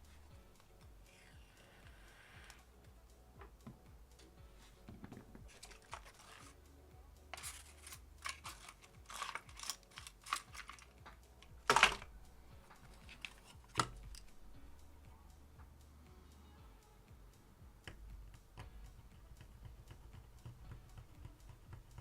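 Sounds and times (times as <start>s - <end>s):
small tools clicking and tapping: 4.9s - 6.6s, 7.3s - 12.1s, 12.7s - 14.3s.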